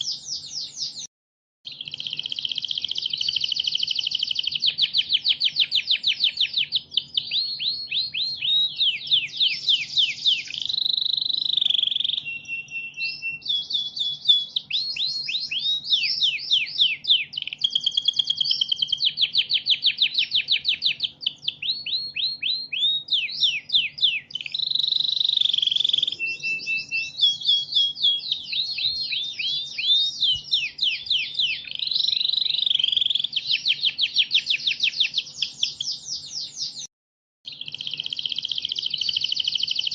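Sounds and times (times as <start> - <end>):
canary singing fast trills: 0.0 - 1.1, 1.7 - 36.9, 37.5 - 39.9.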